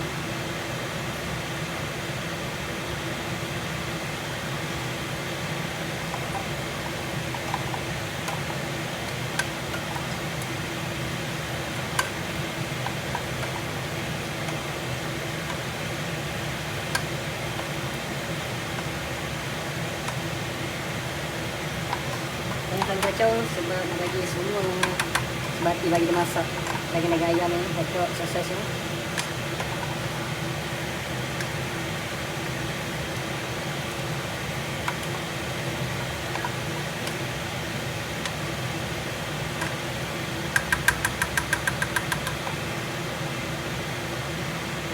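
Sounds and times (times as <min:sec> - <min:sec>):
exhaust fan humming: 0:00.0 - 0:44.9
sharp clicks: 0:24.8 - 0:25.6.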